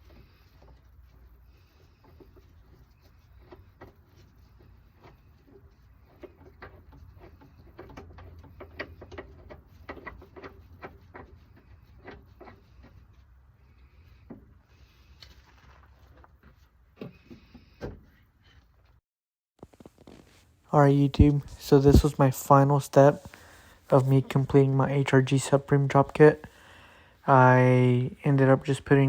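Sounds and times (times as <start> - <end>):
low steady hum: 19.6 - 29.0.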